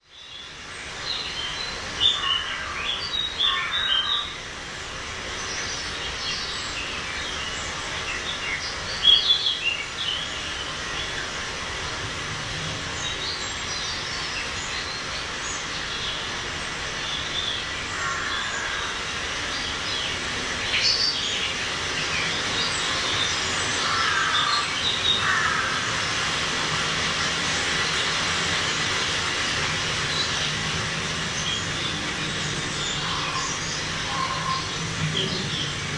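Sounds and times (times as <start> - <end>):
birds chirping: 28.6 - 35.9.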